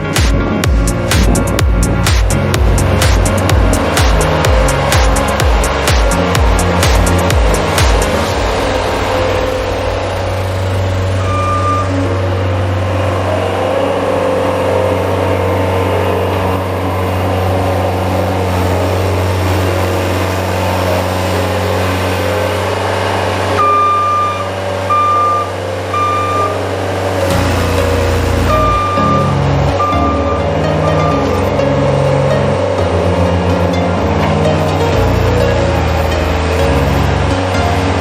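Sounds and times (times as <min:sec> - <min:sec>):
loader engine running: 0:00.0 - 0:38.0
backup alarm beeping: 0:11.0 - 0:12.2, 0:23.6 - 0:26.7, 0:28.4 - 0:31.8.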